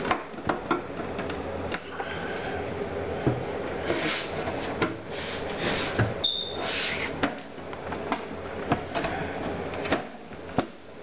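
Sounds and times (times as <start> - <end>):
computer case parts scraping: 3.8 - 7.3
brief high squeak: 6.2 - 6.8.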